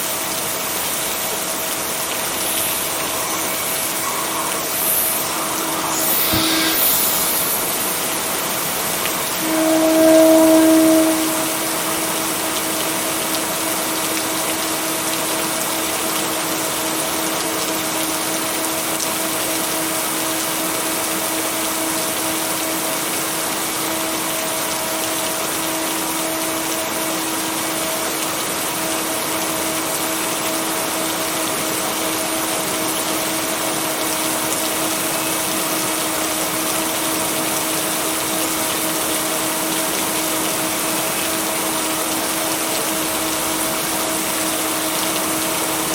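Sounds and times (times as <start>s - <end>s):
steady rain hiss: 0.0s - 45.9s
steady low tones: 9.2s - 12.6s.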